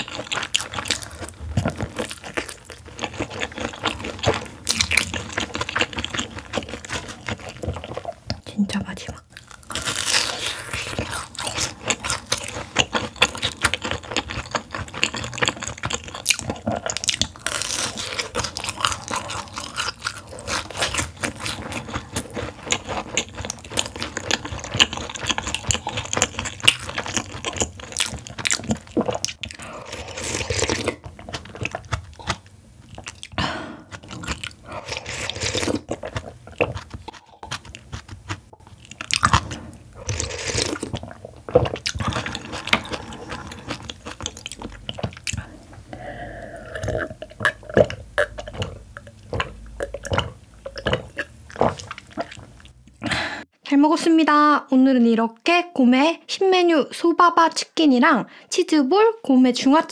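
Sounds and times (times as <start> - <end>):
crunching and chewing food: 0.0 - 53.2
slurping soup: 28.8 - 32.4, 33.8 - 38.2, 39.2 - 48.8.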